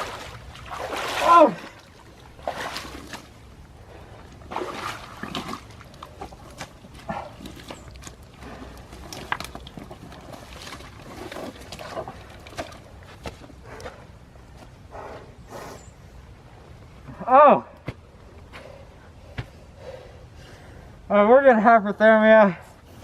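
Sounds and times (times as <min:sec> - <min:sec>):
sloshing in muddy water: 0:00.0 - 0:14.2.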